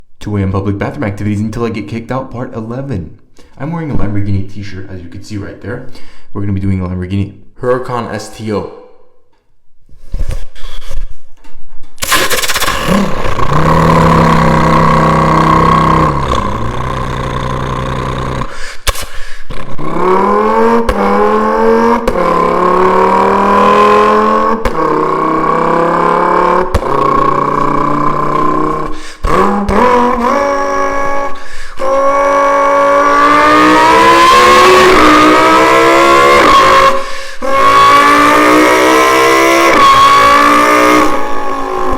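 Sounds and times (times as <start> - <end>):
man imitating car engine revving: 12.0 - 41.9.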